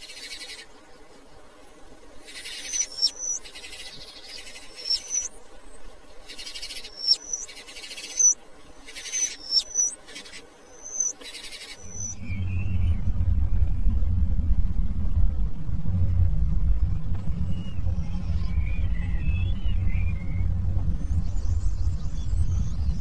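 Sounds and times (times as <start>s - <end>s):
bird whistling calls: 2.3s - 5.4s, 6.3s - 12.9s.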